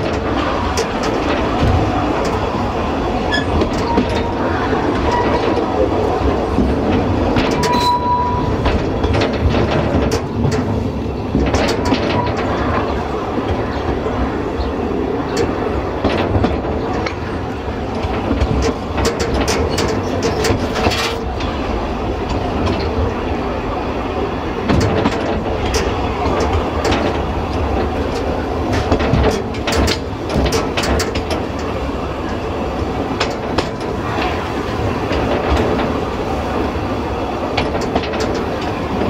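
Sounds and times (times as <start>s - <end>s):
railway carriage rumbling: 0.0s - 39.0s
wheels clicking over rail joints: 0.0s - 39.0s
wheel squeal: 3.3s - 5.6s, 7.5s - 8.8s.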